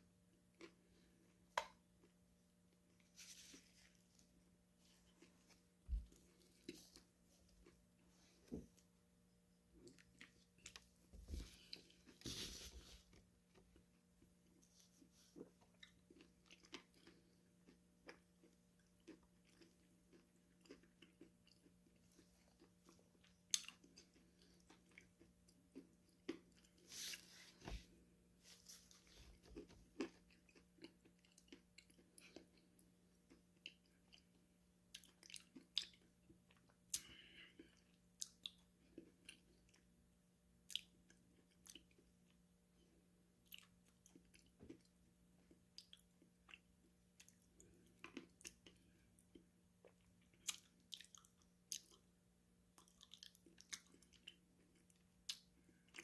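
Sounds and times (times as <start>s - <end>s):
crunchy food chewing: 14.8s - 27.3s, 47.2s - 52.1s, 52.7s - 56.0s.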